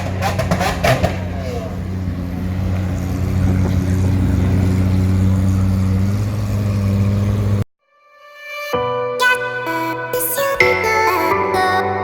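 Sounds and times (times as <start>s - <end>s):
car engine running: 0.0s - 7.7s.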